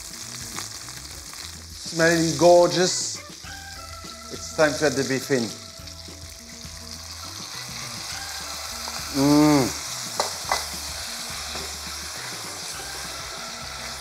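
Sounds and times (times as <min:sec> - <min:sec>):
meat sizzling in a pot: 0:00.0 - 0:14.0
knocks against a pot: 0:10.2 - 0:10.8.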